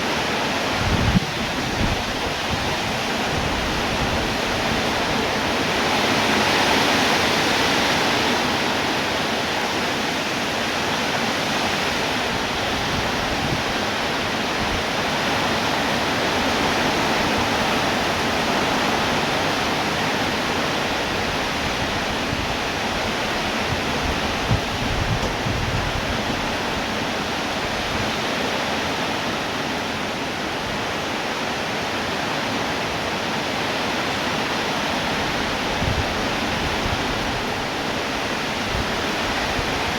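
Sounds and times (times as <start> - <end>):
heavy rain falling: 0.0 - 39.9
low bumps: 23.7 - 26.4.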